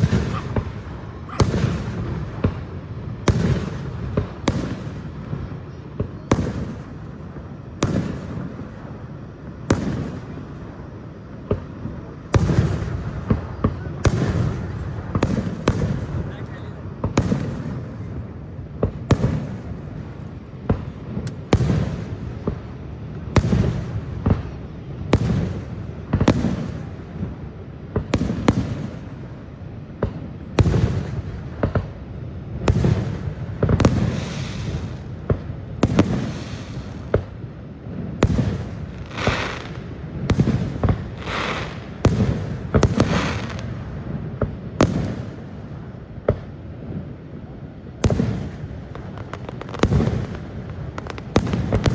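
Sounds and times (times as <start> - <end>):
fireworks shells booming: 0.0 - 7.1, 11.4 - 18.2, 38.2 - 46.5, 48.0 - 51.9
fireworks crackling: 0.0 - 51.9.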